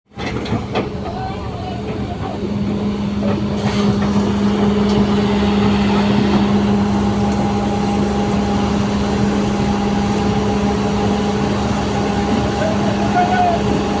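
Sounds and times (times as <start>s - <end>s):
road and wind noise: 0.1s - 14.0s
truck engine droning: 0.1s - 14.0s.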